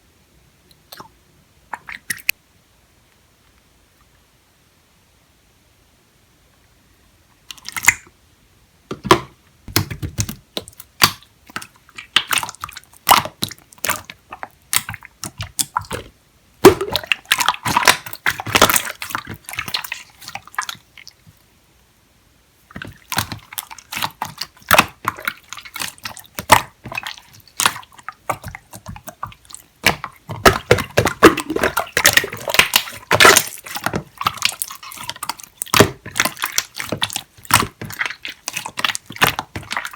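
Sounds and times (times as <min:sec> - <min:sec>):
slime squelching by hand: 0:07.5 - 0:08.1, 0:09.1 - 0:21.4, 0:22.6 - 0:39.9.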